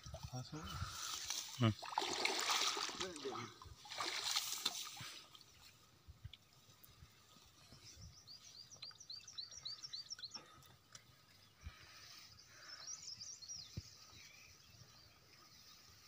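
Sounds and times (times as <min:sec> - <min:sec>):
outdoor background noise: 0:00.0 - 0:16.0
small bird singing: 0:07.6 - 0:16.0.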